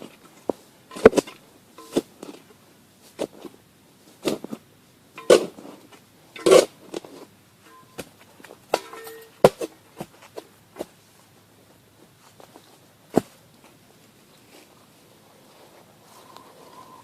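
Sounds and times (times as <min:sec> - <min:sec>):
shovel chopping and scraping soil: 0:00.1 - 0:02.5, 0:04.2 - 0:04.6, 0:05.2 - 0:11.0.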